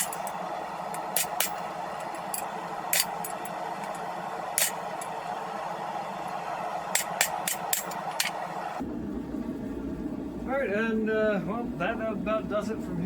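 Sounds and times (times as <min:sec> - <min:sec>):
forge rushing noise: 0:00.0 - 0:09.4.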